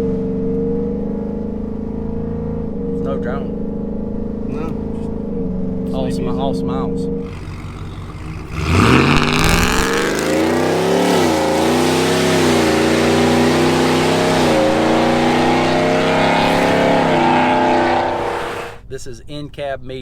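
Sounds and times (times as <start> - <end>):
truck engine exhaust roaring: 7.1 - 18.8.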